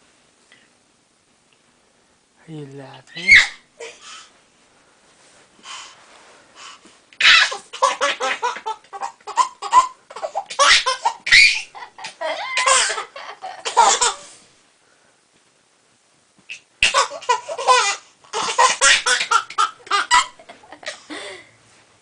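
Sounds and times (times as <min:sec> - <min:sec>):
baby laughing: 0:07.2 - 0:14.3, 0:16.5 - 0:21.0.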